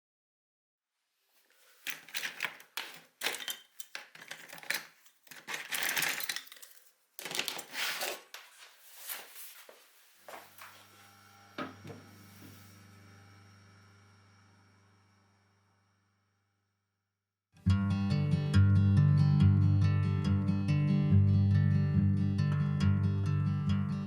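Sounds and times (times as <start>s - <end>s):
small hard objects clinking: 1.8s - 8.2s.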